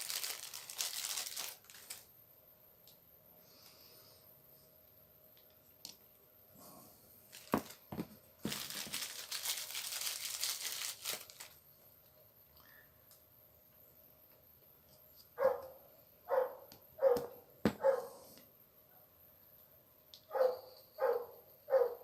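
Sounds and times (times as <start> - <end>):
crinkling tearing rustle: 0.0 - 2.1, 7.3 - 11.6.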